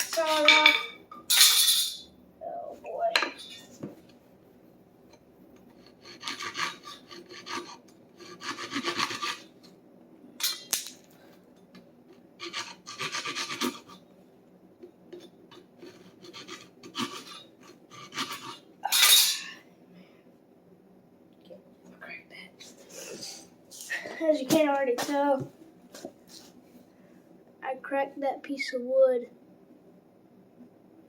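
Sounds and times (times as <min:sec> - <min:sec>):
hand saw cutting wood: 0:05.8 - 0:09.5, 0:12.4 - 0:14.0, 0:15.8 - 0:18.6.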